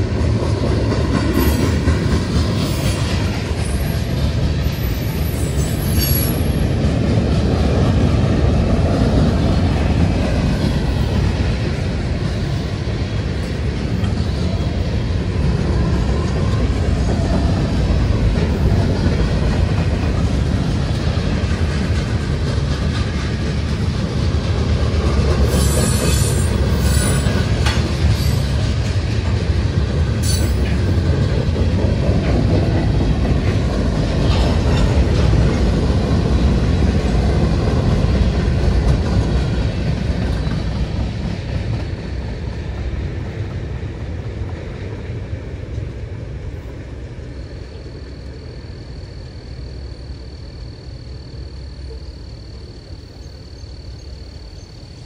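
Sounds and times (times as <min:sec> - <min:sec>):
train wheels rumbling on track: 0:00.0 - 0:55.0
high-pitched wheel squeals: 0:25.5 - 0:27.3.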